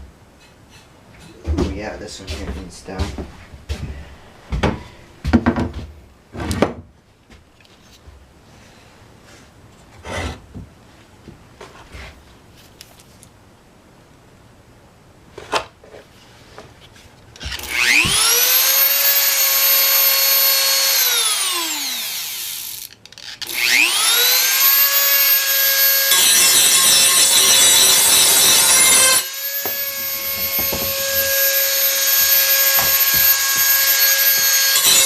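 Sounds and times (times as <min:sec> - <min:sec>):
rotary tool whine: 0:17.4 - 0:35.0
bit grinding against metal: 0:24.3 - 0:35.0.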